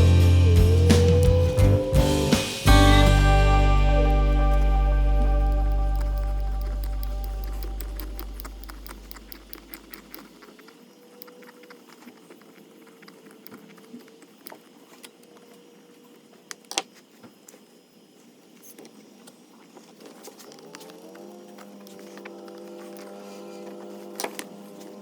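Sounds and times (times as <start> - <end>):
background music: 0.0 - 8.6
small parts clicking and tapping: 5.1 - 15.2.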